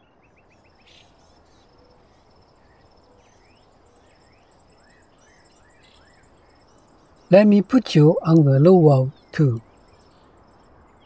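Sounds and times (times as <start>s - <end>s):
high pulsed bird trill: 0.3s - 11.0s.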